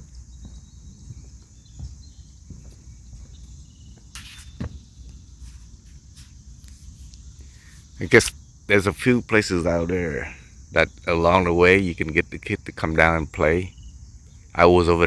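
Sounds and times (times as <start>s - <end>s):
footsteps on a trail: 0.0s - 8.2s
insects chirring: 0.0s - 15.0s.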